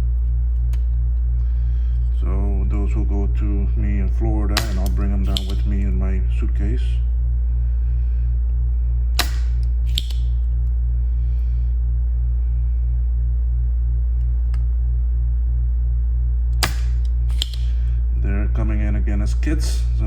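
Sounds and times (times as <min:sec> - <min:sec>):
vacuum pump humming: 0:00.0 - 0:20.0
sharp clicks: 0:04.5 - 0:05.7, 0:09.2 - 0:10.5, 0:16.5 - 0:17.8.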